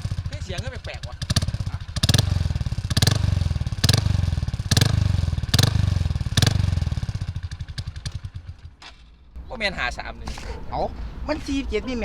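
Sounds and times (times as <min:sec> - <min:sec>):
motorcycle engine idling and revving: 0:00.0 - 0:09.4.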